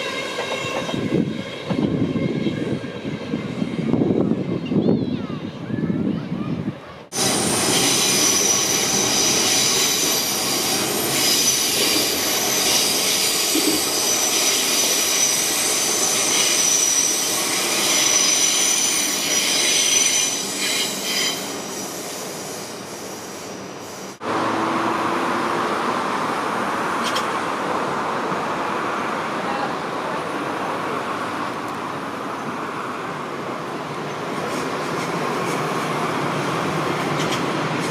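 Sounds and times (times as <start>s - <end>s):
train wheels squealing: 0.0s - 5.2s, 7.2s - 24.2s
rumble of rails: 0.0s - 37.9s.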